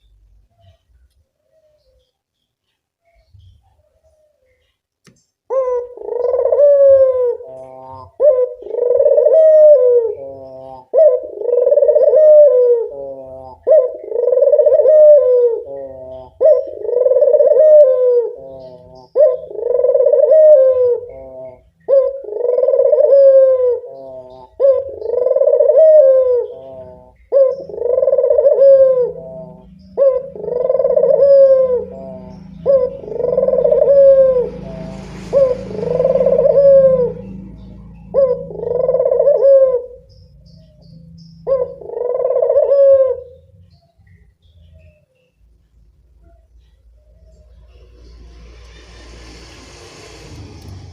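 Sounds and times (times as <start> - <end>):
dove cooing: 5.5 - 45.0.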